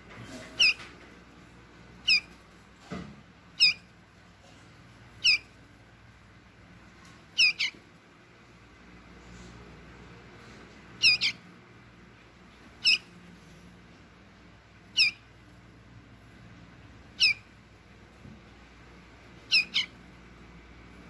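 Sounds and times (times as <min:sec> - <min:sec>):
nestling squawking: 0:00.3 - 0:00.9, 0:02.0 - 0:02.4, 0:03.5 - 0:03.9, 0:05.2 - 0:05.6, 0:07.3 - 0:07.8, 0:11.0 - 0:11.5, 0:12.7 - 0:13.2, 0:14.9 - 0:15.3, 0:17.1 - 0:17.6, 0:19.4 - 0:20.1.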